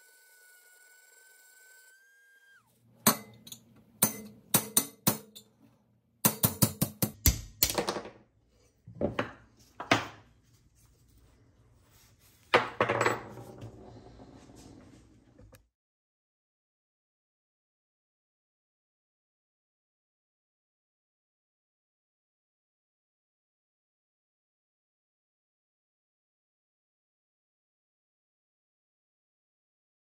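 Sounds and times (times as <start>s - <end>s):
rotary tool spinning down: 0.0s - 2.7s
hammer striking metal punch: 3.0s - 5.4s, 6.2s - 7.9s.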